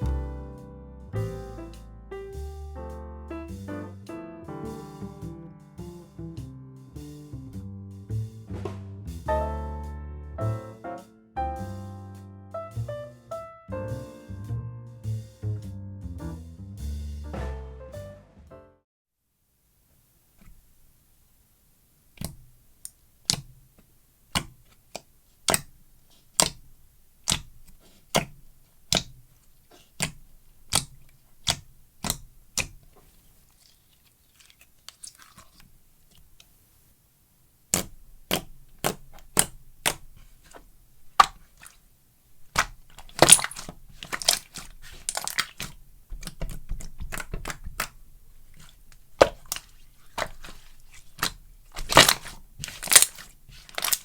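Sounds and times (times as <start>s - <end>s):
slime crackling: 22.0s - 36.6s, 37.6s - 54.0s
slime popping clicks: 26.4s - 26.6s, 37.7s - 40.1s, 42.5s - 48.0s, 48.6s - 54.0s.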